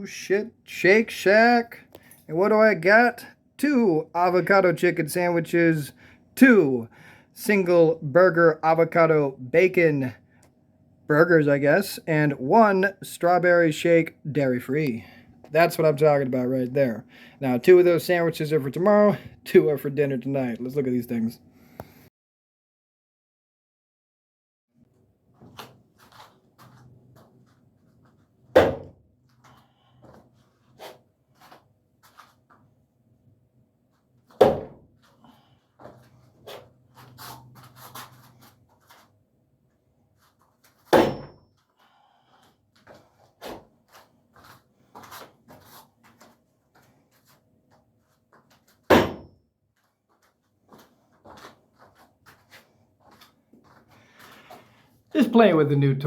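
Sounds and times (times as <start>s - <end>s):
knife striking target: 28.6s - 28.9s, 34.4s - 34.8s, 40.9s - 41.4s, 48.9s - 49.4s
loud sharp thunk: 28.6s - 28.9s, 34.4s - 34.8s, 40.9s - 41.4s, 48.9s - 49.3s.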